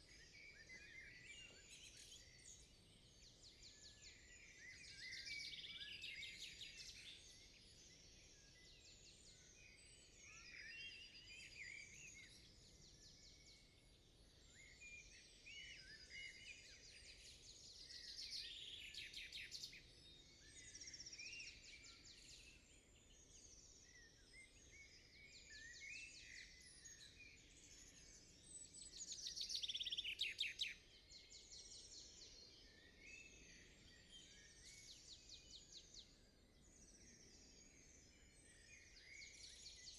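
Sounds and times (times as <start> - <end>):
small songbirds chirping: 0.0 - 39.9
loud bird trilling song: 23.6 - 39.9.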